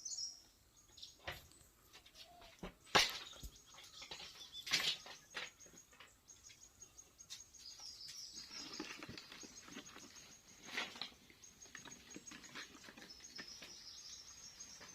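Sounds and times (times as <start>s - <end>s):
small birds chirping: 0.0s - 14.9s
knocks and rustles of handling: 1.2s - 6.6s.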